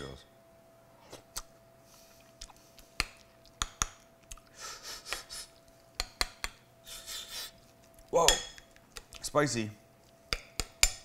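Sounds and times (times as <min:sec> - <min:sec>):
person chewing noodles: 0:02.0 - 0:05.9.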